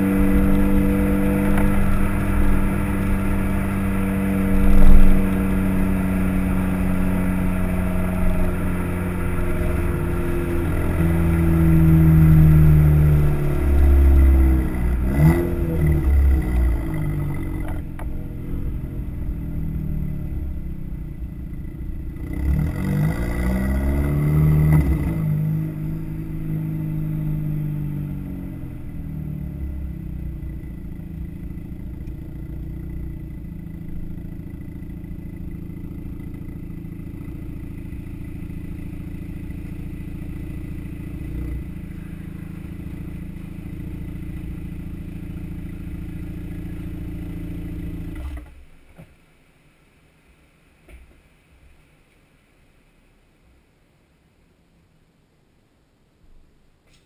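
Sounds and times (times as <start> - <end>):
car exhaust drone: 0.0 - 53.7.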